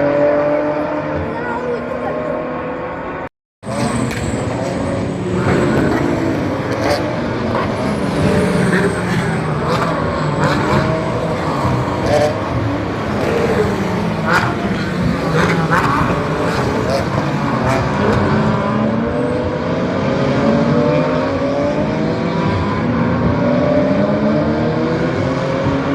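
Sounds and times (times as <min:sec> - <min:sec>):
crowd noise: 0:00.0 - 0:19.4
racing car engines: 0:00.0 - 0:25.9
voices: 0:00.1 - 0:18.2.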